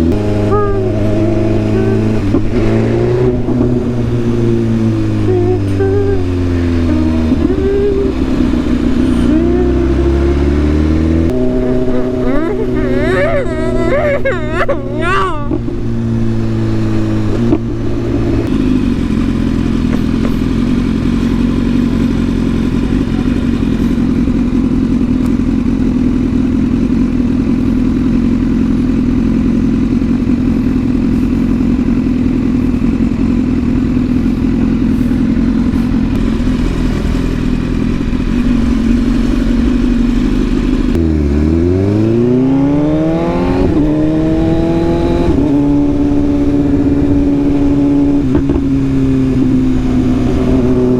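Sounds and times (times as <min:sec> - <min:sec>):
motorcycle engine cruising: 0:00.0 - 0:50.9.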